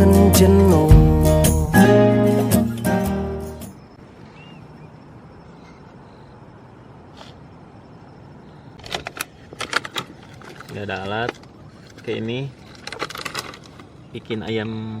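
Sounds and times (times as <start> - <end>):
background music with guitar: 0.0 - 3.7
outdoor background noise: 0.0 - 15.0
faint short chirp: 3.8 - 6.3.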